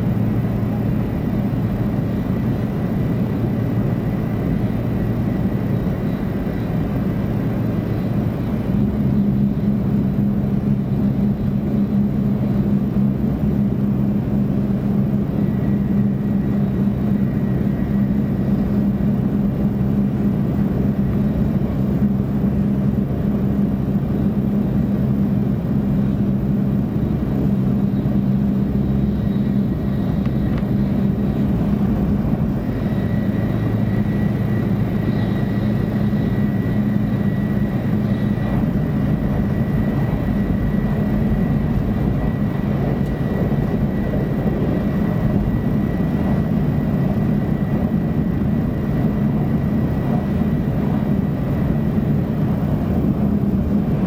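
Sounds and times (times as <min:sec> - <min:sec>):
faint high whine: 0:00.0 - 0:54.0
train cabin rumble: 0:25.3 - 0:54.0.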